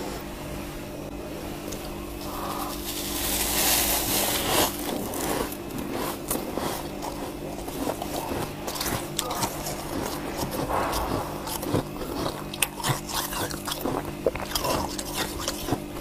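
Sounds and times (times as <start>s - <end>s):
scraping frost: 2.2s - 12.5s
low hum: 7.6s - 14.4s.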